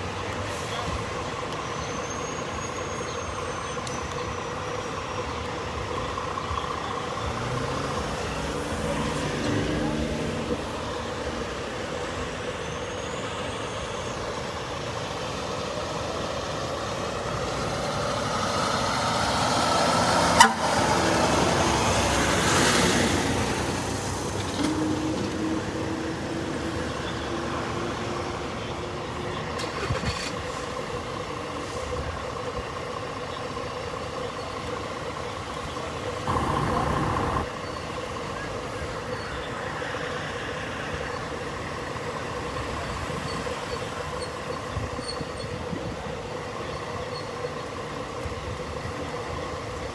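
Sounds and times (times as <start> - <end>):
street traffic: 0.0 - 49.9
loud vehicle passing: 7.2 - 12.0, 17.2 - 28.1, 36.2 - 37.6.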